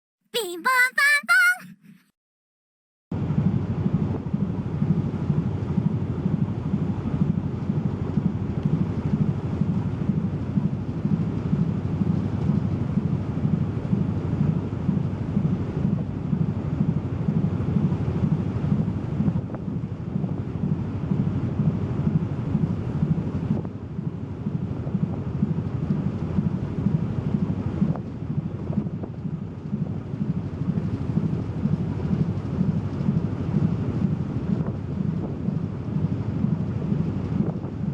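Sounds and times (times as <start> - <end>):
wind buffeting microphone: 3.2 - 37.9.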